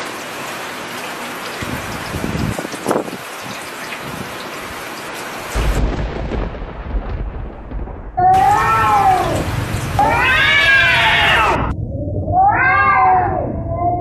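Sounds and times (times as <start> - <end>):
cat meowing: 8.2 - 14.0.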